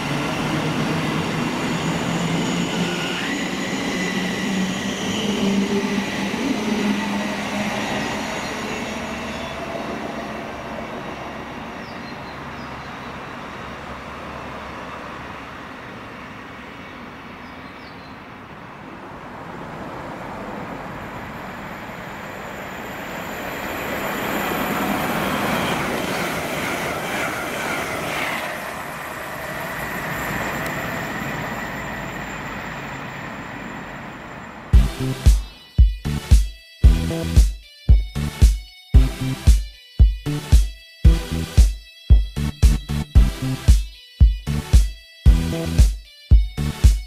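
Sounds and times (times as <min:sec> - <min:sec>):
high wheel squeal: 0:00.0 - 0:15.4, 0:20.3 - 0:35.6
train wheel and rail noise: 0:00.0 - 0:35.7.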